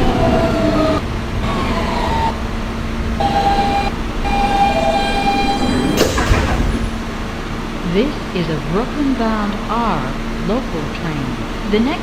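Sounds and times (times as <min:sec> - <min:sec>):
subway car hum and rumble: 0:00.0 - 0:12.0
whistle-like tones: 0:03.2 - 0:06.5.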